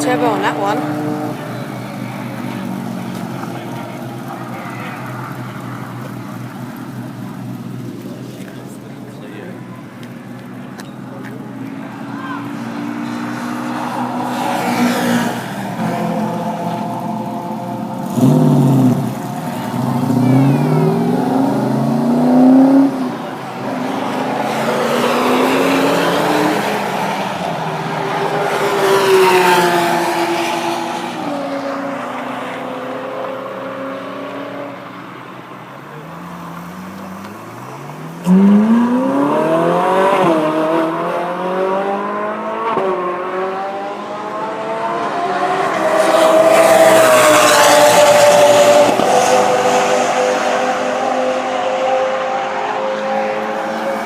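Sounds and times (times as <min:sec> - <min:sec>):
race cars accelerating past: 0:00.0 - 0:07.2, 0:11.6 - 0:35.3, 0:36.1 - 0:54.0.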